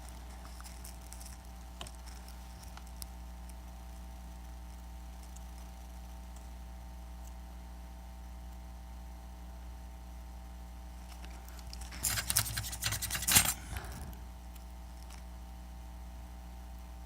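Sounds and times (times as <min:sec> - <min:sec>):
steady low hum: 0:00.0 - 0:17.0
tools clicking and rattling: 0:11.6 - 0:14.0.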